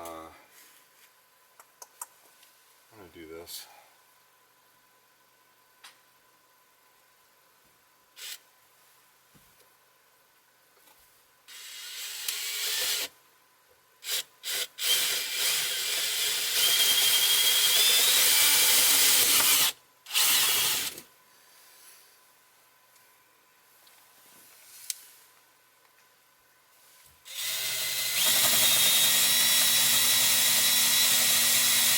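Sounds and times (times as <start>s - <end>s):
power tool cutting wood: 14.0s - 21.0s, 27.3s - 31.9s.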